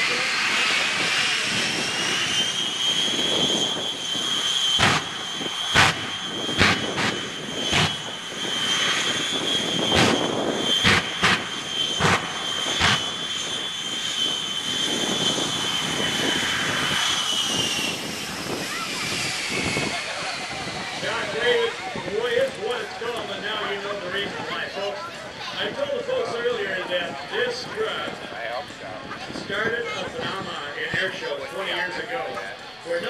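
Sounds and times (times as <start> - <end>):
jet engine high whine: 0.0 - 33.0
sharp bangs: 4.7 - 8.2, 9.8 - 13.4.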